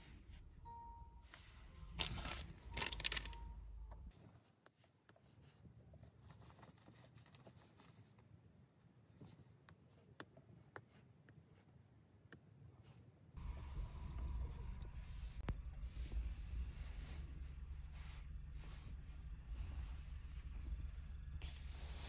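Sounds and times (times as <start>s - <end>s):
fabric pouch rustling: 2.0s - 3.4s.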